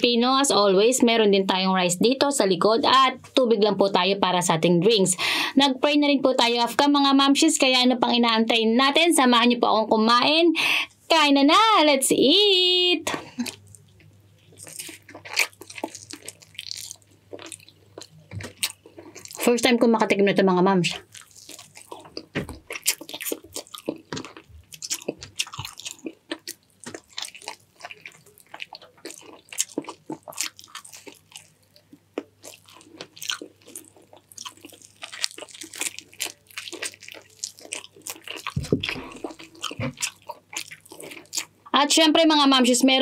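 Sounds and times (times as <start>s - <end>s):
wet chewing: 13.2s - 19.5s, 20.9s - 41.7s
crunchy bites: 14.5s - 19.5s, 21.0s - 41.6s.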